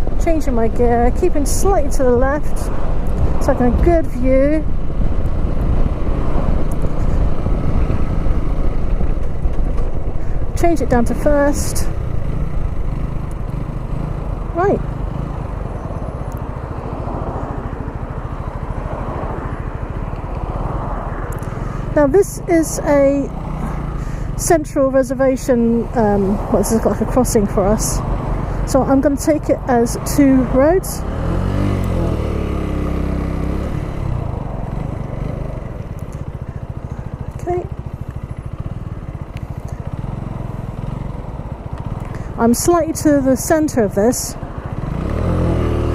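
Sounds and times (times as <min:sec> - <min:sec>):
motorcycle engine running: 0:00.0 - 0:45.9
road and wind noise: 0:00.0 - 0:45.9.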